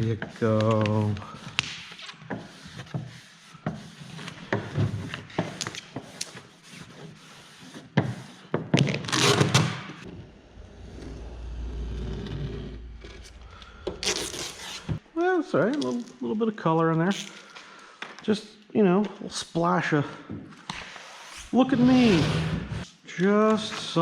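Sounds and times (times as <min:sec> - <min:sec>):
low rumble: 0:10.1 - 0:15.0.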